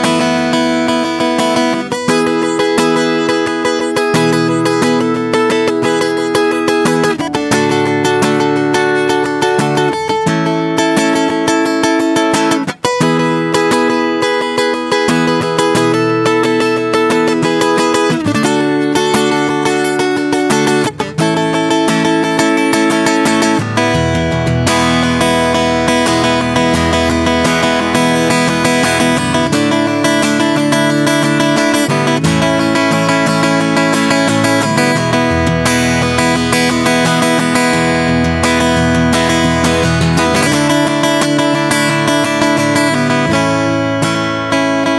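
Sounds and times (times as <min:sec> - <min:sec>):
bass line: 0:00.0 - 0:08.4, 0:23.7 - 0:30.6, 0:34.3 - 0:43.6
acoustic guitar picking and strumming: 0:00.0 - 0:44.9.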